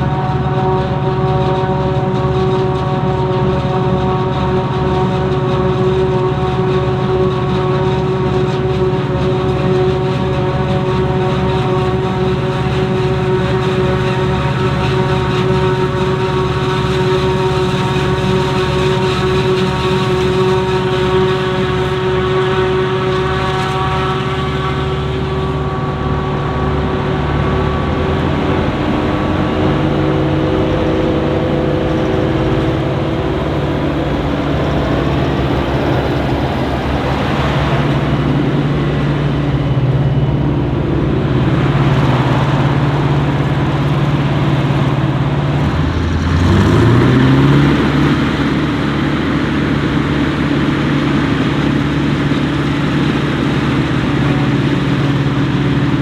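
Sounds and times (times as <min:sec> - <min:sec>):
heavy diesel engines running: 0:00.0 - 0:56.0
engine revving sharply: 0:17.5 - 0:50.3.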